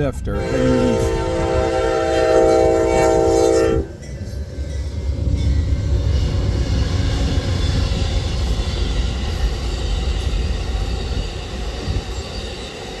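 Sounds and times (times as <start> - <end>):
train passing rumble: 0.0 - 13.0
train horn chord: 0.4 - 4.1.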